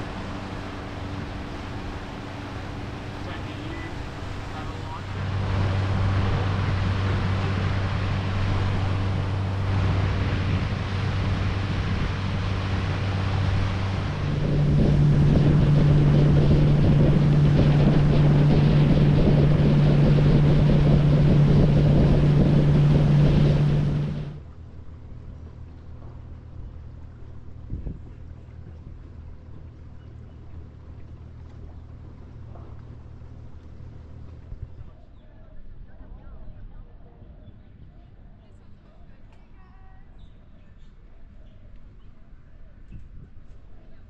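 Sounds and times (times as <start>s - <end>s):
water rushing: 0.0s - 34.5s
boat motor running: 0.0s - 35.2s
wind: 0.0s - 44.0s.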